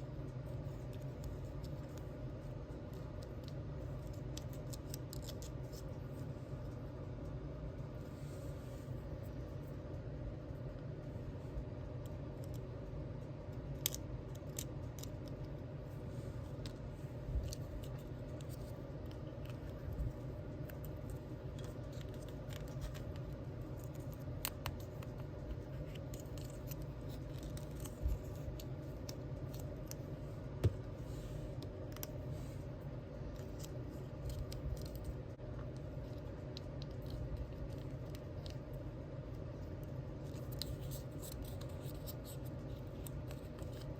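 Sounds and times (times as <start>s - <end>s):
low hum: 0.0s - 43.9s
light clicks and scrapes: 13.5s - 43.9s.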